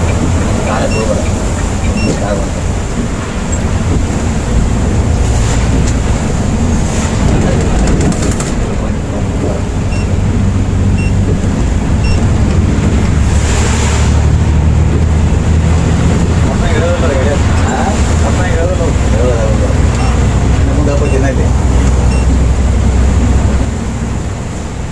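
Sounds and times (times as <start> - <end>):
bus engine and road noise: 0.0 - 24.9
short high beeps: 0.8 - 1.2, 9.9 - 10.2, 11.0 - 11.2.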